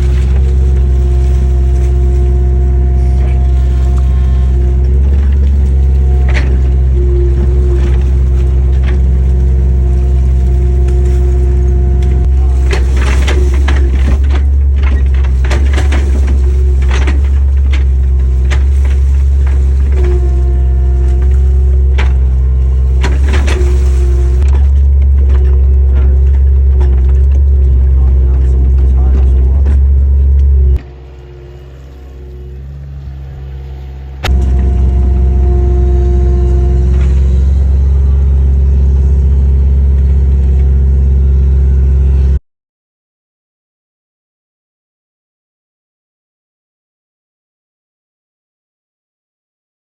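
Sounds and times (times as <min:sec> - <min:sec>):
diesel engine running: 0:00.0 - 0:42.4
machine knocks and clanks: 0:03.0 - 0:30.8.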